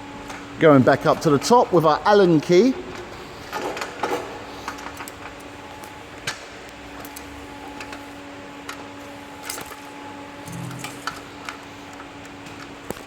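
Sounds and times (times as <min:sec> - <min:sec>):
steady low hum: 0:05.5 - 0:12.3.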